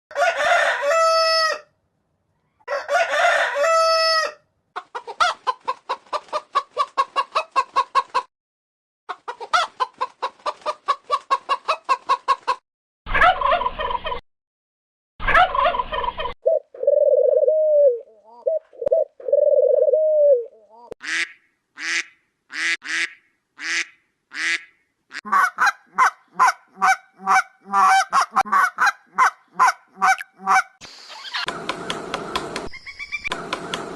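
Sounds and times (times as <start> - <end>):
rooster crowing: 0.1 - 1.7, 2.7 - 4.4
hens clucking rapidly: 4.8 - 8.3, 9.1 - 12.6, 13.2 - 14.2, 15.3 - 16.3, 25.3 - 31.5
barnyard bird calls: 15.2 - 31.5, 32.7 - 33.3.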